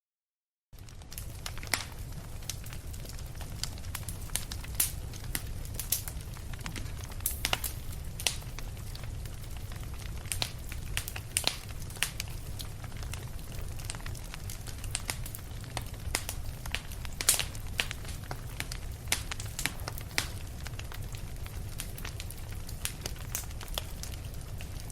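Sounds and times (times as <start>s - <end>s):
low rumble of flames: 0.8s - 24.9s
wood crackling and popping: 0.8s - 24.9s.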